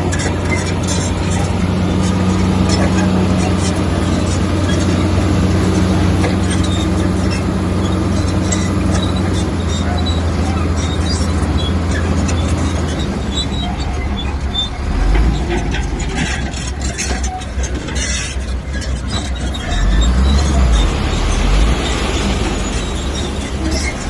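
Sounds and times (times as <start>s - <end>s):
bulldozer diesel engine: 0.0s - 24.0s
steel tracks squeaking and clanking: 0.0s - 24.0s.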